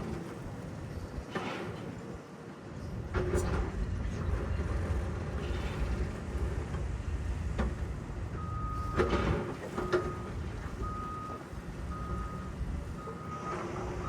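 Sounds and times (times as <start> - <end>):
vehicle reversing alarm beeping: 8.2 - 14.0.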